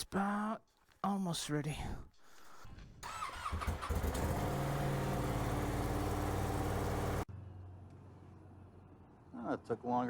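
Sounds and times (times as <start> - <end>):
motorcycle engine idling: 3.4 - 7.2.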